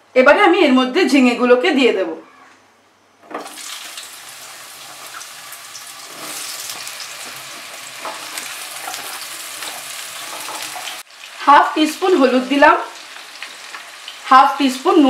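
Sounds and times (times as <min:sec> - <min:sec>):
hot oil sizzling: 0:03.4 - 0:15.0.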